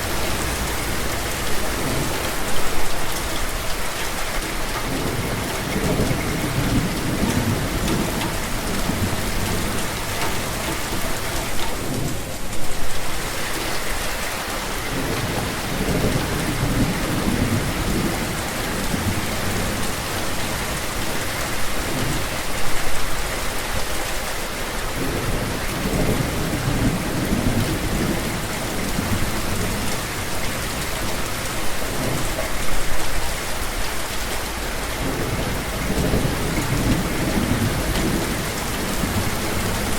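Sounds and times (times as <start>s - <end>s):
deep thunder rumbles: 0.0s - 13.3s, 14.8s - 21.2s, 34.9s - 39.9s
steady rain falling: 0.0s - 39.9s.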